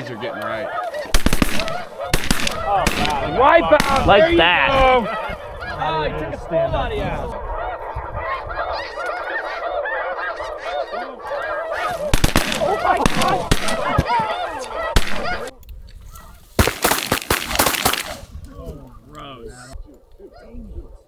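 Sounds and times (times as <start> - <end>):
geese honking: 0.0 - 6.3, 7.3 - 18.9
sharp cracks: 1.1 - 4.4, 11.8 - 14.3, 15.0 - 15.6, 16.6 - 18.5.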